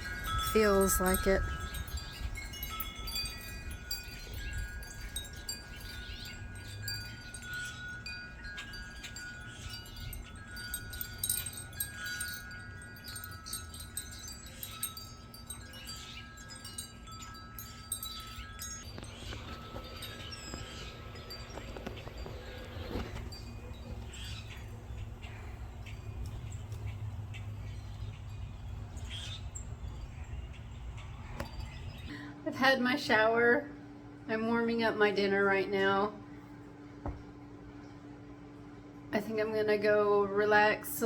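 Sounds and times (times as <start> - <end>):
wind rumble on microphone: 0.0 - 32.1
wind chimes ringing: 0.0 - 32.3.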